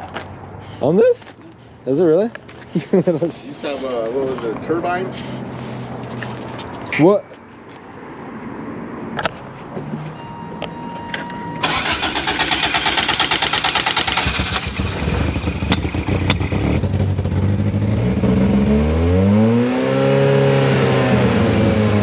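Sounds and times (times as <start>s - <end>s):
car starter cranking: 11.6s - 16.7s
car engine running and revving: 14.0s - 22.0s.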